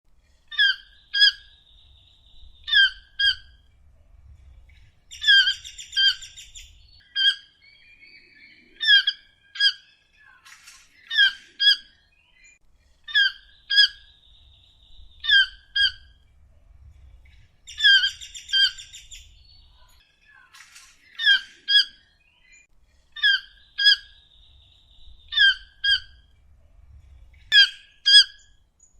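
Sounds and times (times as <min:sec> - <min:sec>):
toucan squawking calls: 0:00.5 - 0:01.6, 0:02.6 - 0:03.6, 0:05.1 - 0:12.0, 0:13.1 - 0:14.2, 0:15.2 - 0:16.2, 0:17.7 - 0:19.3, 0:20.4 - 0:22.1, 0:23.2 - 0:24.3, 0:25.2 - 0:26.3, 0:27.5 - 0:28.5.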